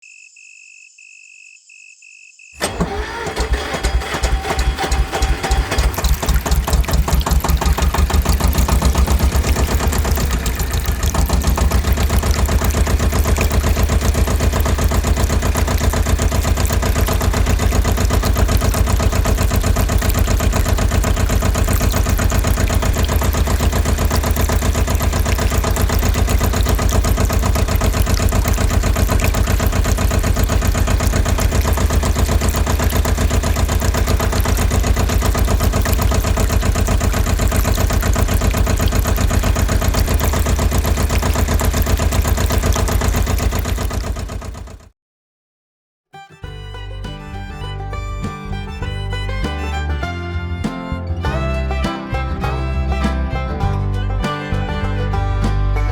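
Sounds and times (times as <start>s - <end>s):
small engine chugging: 2.6s - 44.9s.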